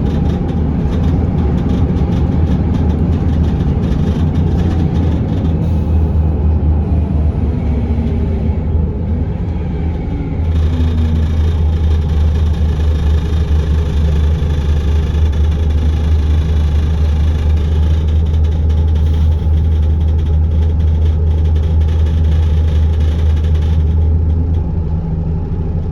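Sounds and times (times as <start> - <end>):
bus diesel engine drone: 0.0 - 25.9.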